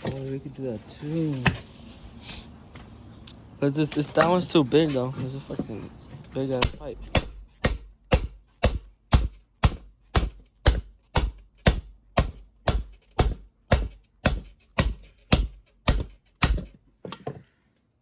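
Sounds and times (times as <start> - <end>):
hammer blows ringing: 6.6 - 16.6.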